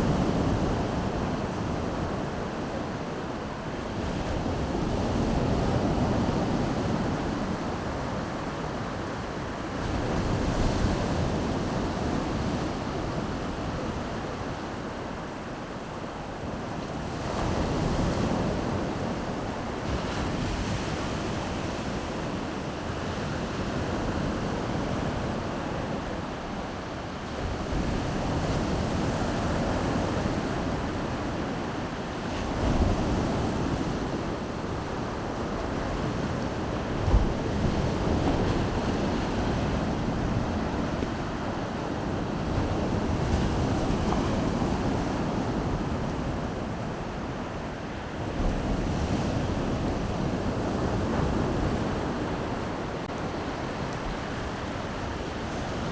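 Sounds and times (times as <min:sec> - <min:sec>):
wind buffeting microphone: 0:32.1 - 0:47.3.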